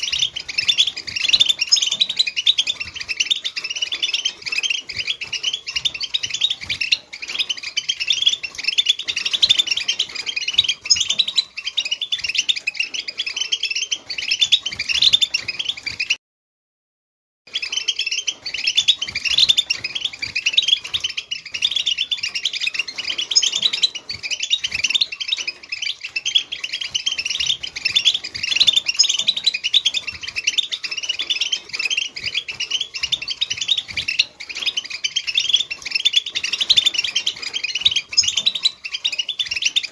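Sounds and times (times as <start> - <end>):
goldfinch twittering song: 0.0 - 16.2, 17.5 - 39.9.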